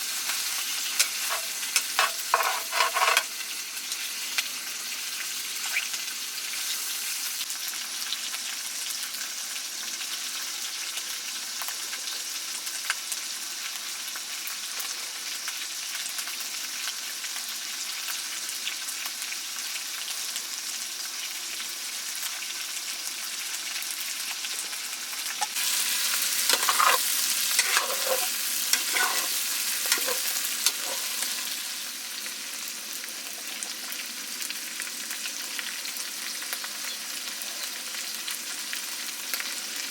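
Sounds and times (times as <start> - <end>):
food sizzling in a pan: 0.0 - 39.9
scraping: 1.0 - 3.3, 26.4 - 31.6.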